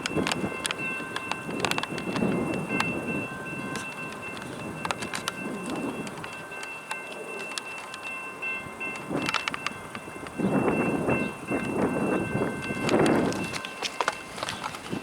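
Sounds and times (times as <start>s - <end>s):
wheels clicking over rail: 0.0s - 8.1s, 8.9s - 15.0s
freight train rumble: 0.0s - 15.0s.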